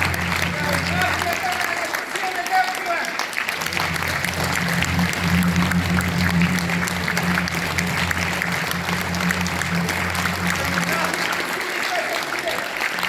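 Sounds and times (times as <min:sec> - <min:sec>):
steady low tone: 0:00.0 - 0:02.2, 0:03.5 - 0:13.0
audience applauding: 0:00.0 - 0:13.0.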